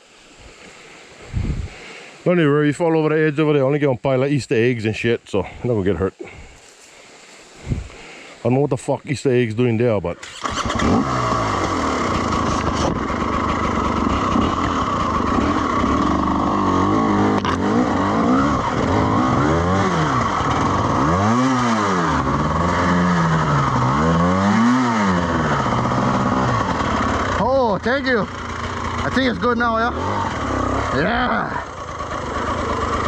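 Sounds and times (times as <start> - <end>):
dirt bike engine revving: 10.2 - 33.0.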